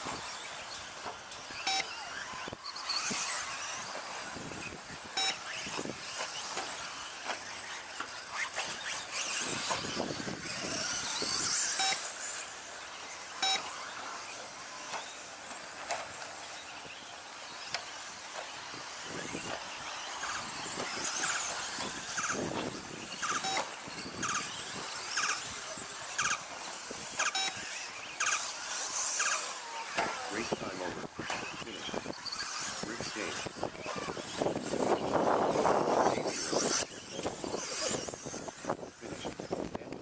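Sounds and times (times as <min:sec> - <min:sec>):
toy car motors whining: 0:00.0 - 0:40.0
short beeps: 0:01.7 - 0:02.0, 0:05.2 - 0:05.5, 0:13.4 - 0:13.8, 0:27.4 - 0:27.7
tyres scrabbling: 0:13.8 - 0:27.3.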